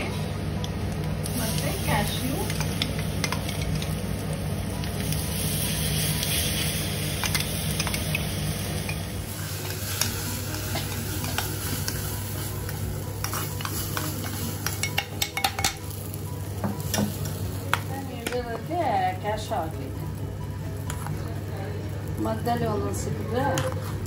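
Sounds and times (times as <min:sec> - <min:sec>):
oil sizzling in a pan: 0:00.9 - 0:19.8.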